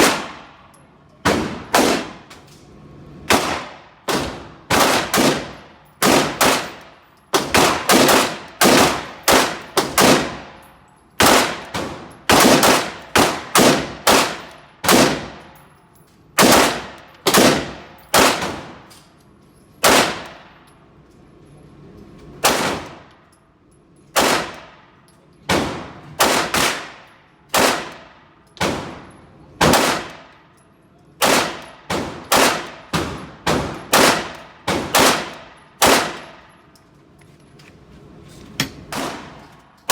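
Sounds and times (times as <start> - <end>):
pistol shots with ringing tail: 0.0 - 2.4, 3.3 - 15.6, 16.4 - 18.9, 19.8 - 20.6, 22.4 - 23.1, 24.1 - 30.5, 31.2 - 36.7, 38.8 - 39.9.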